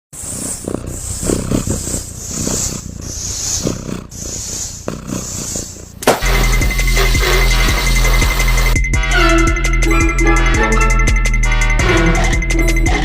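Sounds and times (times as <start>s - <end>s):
cat rumbling: 0.1s - 6.0s.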